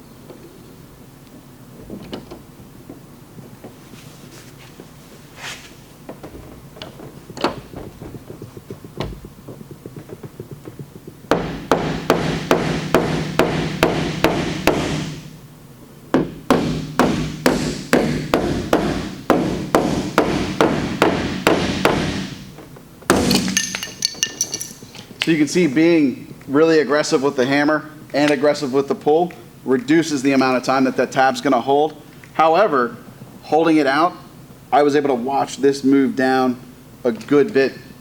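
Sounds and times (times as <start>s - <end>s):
hammer striking metal panel: 11.3s - 15.1s.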